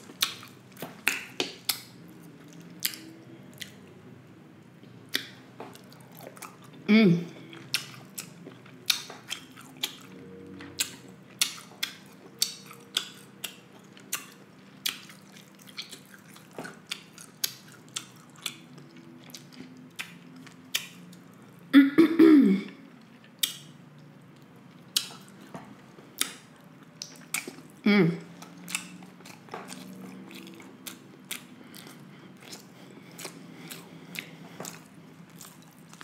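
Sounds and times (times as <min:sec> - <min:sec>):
chewing with mouth clicks: 0:00.0 - 0:04.0, 0:05.1 - 0:21.7, 0:23.0 - 0:36.0
throat vocal sound: 0:06.9 - 0:07.5.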